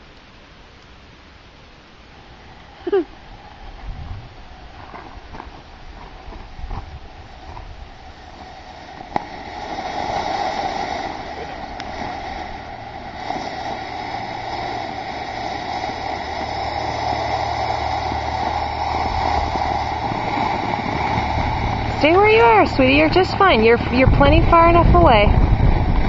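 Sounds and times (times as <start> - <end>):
fountain firework hissing: 1.3 - 26.0
firework pop: 9.0 - 10.6.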